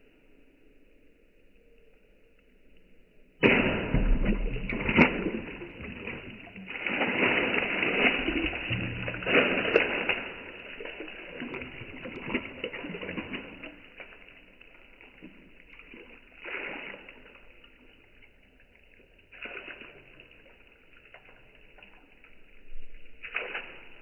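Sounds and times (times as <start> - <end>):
tile shards splashing into water: 3.4 - 17.8.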